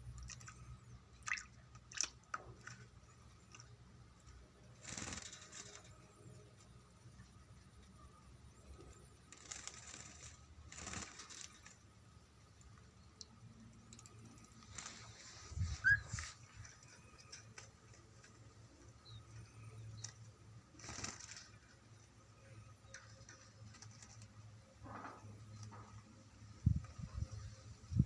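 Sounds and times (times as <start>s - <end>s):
bird splashing and fluttering: 0.1s - 7.3s, 8.9s - 12.9s, 13.8s - 22.0s, 22.9s - 26.0s
bird chirp: 15.6s - 17.5s, 18.7s - 20.3s.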